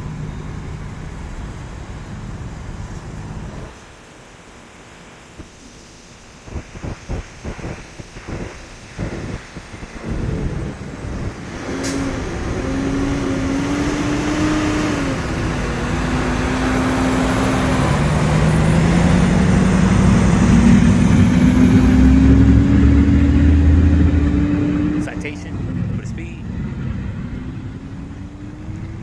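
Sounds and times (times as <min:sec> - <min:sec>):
vehicle engine speeding up: 0:07.5 - 0:29.0.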